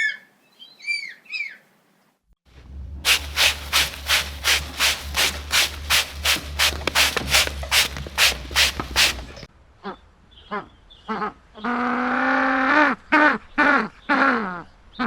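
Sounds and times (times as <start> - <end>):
rhythmic rasping: 3.1 - 9.5.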